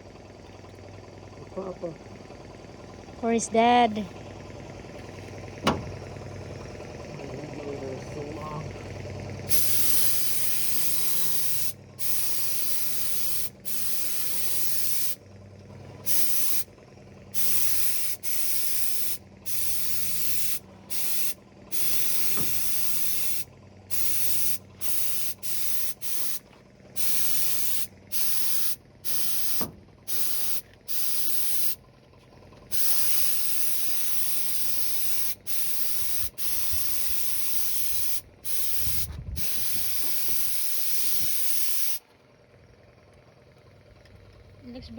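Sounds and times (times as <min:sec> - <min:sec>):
spray gun hissing bursts: 0:09.5 - 0:15.2, 0:16.0 - 0:16.7, 0:17.3 - 0:26.4, 0:27.0 - 0:31.8, 0:32.7 - 0:42.0.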